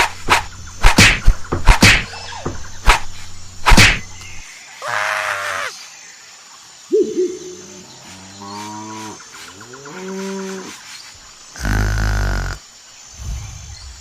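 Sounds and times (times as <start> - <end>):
sharp whacks: 0.0 - 4.2
steady low hum: 0.0 - 4.4.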